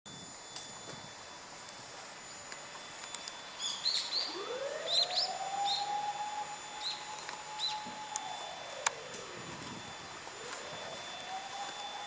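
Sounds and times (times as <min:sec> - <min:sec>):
siren winding up: 0:00.1 - 0:12.0
bird chirping: 0:03.5 - 0:06.0, 0:06.8 - 0:08.0.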